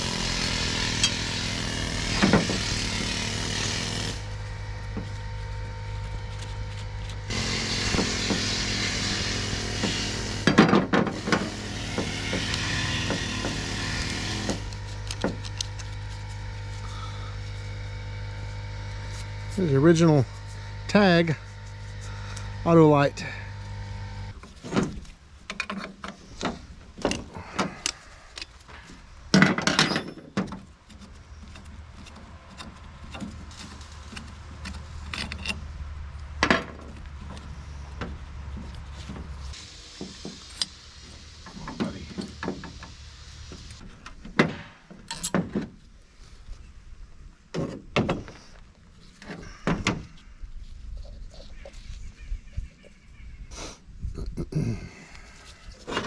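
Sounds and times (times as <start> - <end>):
steady low hum: 0.6 - 24.4
metal carburetor parts clinking: 29.5 - 35.7, 45.0 - 45.4
hiss: 39.5 - 43.8.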